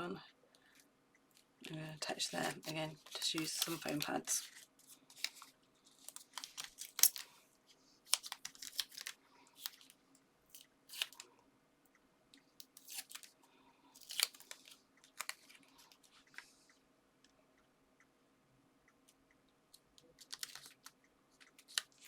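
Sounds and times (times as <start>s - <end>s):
paper and card rustling: 1.6s - 7.4s, 8.0s - 11.3s, 12.8s - 13.4s, 14.0s - 16.5s, 20.2s - 22.0s.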